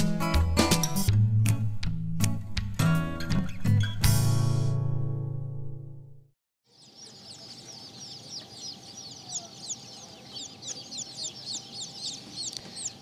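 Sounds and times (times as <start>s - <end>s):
chicks chirping and peeping: 6.7s - 13.0s
chickens clucking softly: 6.8s - 13.0s.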